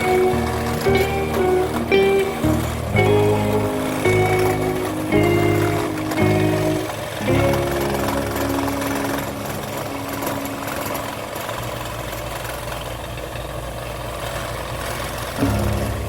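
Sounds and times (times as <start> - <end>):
faint background music: 0.0 - 11.8
electric scroll saw running: 0.0 - 13.1.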